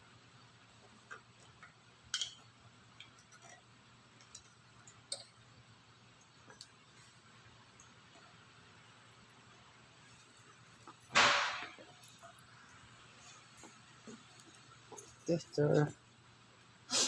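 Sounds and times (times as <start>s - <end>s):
small tools clicking and clinking: 1.0s - 5.4s.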